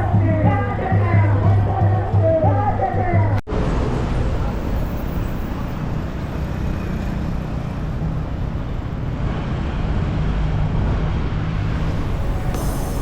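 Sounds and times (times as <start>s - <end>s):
moving vehicle rumble: 0.0s - 13.0s.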